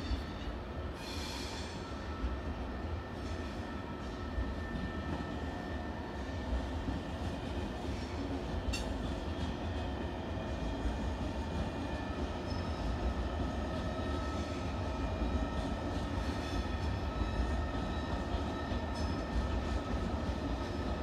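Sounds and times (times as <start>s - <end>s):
train low rumble: 0.0s - 21.0s.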